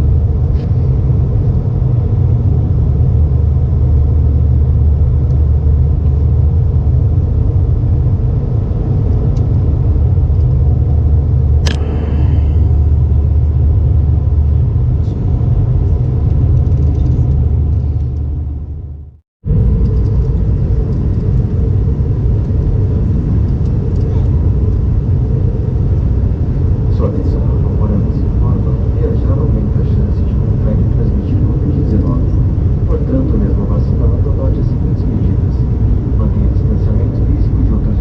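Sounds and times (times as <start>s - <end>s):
airliner cabin rumble: 0.0s - 38.0s
sharp sound with ringing tail: 11.6s - 14.4s.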